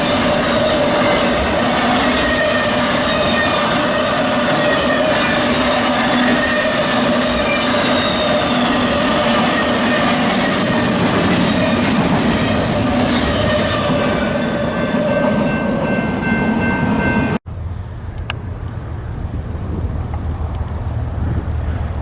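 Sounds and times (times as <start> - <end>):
wheels squealing on rail: 0.0 - 17.4
freight train rolling past: 0.0 - 22.0
wind on microphone: 17.6 - 22.0.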